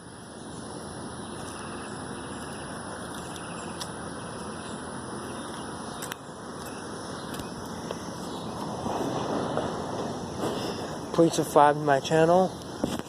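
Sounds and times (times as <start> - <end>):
wind rushing on microphone: 8.3 - 11.2.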